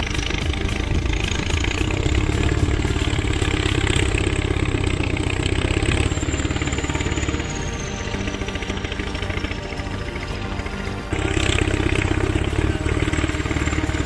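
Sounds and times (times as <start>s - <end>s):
bulldozer diesel engine: 0.0s - 14.0s
high thin whine: 0.0s - 14.0s.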